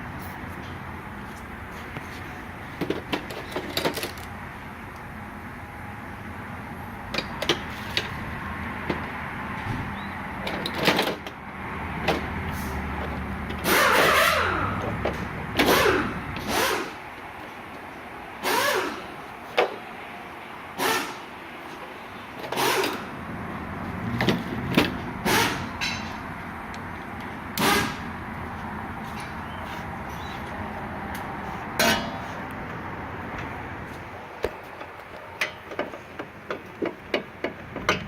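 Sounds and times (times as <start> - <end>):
workshop hum: 0.0 - 38.0
power tool whirring: 18.4 - 19.0.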